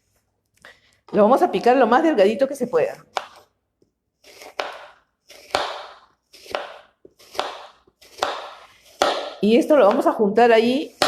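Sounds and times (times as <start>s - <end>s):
knife slicing an apple: 2.6s - 3.6s, 4.2s - 11.0s.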